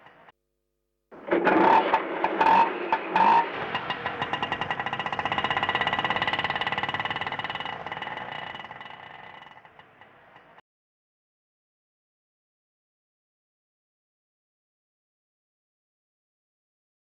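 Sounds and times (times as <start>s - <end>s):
auto rickshaw engine chugging: 0.0s - 0.3s, 1.2s - 10.6s.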